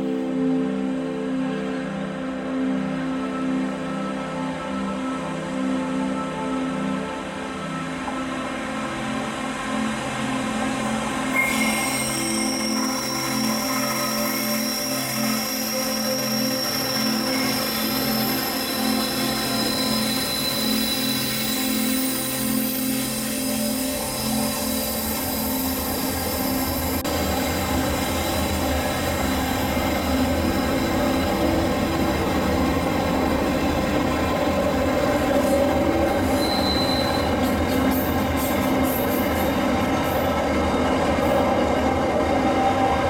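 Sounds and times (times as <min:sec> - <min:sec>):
steam train rumbling along track: 0:09.2 - 0:43.0
wheels squealing: 0:36.1 - 0:40.2.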